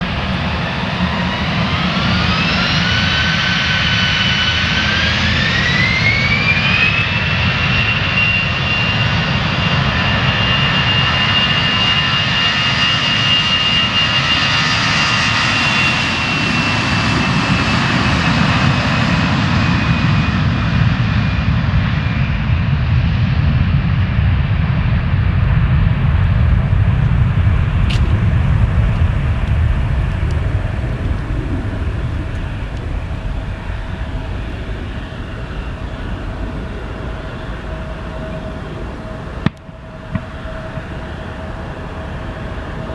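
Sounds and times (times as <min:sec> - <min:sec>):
jet engine whine: 0:00.0 - 0:42.9
deep rumble: 0:23.0 - 0:42.9.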